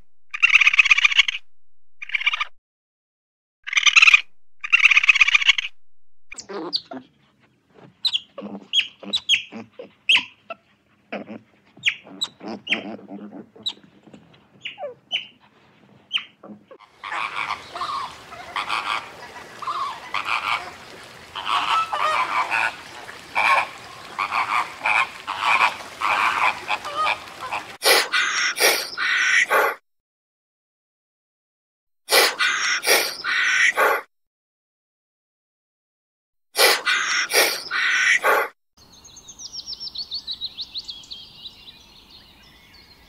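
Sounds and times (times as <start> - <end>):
otters chirping and squeaking: 0.3 - 2.6, 3.7 - 7.1, 7.8 - 15.4, 16.0 - 18.0
flamingos honking: 16.8 - 29.5.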